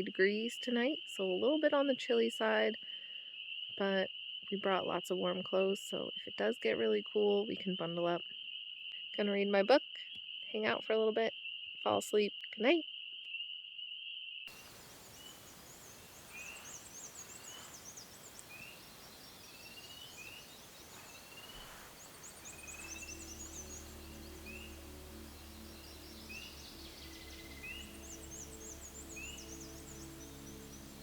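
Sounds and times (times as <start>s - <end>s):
insect trill: 12.8s - 31.0s
birds singing: 14.5s - 31.0s
soft background music: 14.6s - 31.0s.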